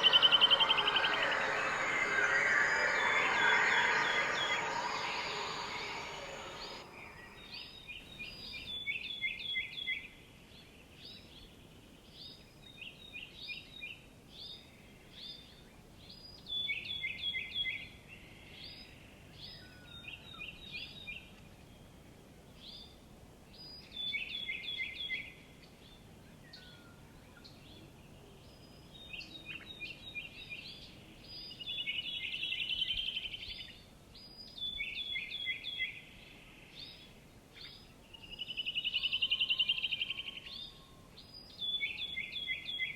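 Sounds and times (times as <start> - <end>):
high bird chirps: 0.0 - 7.5.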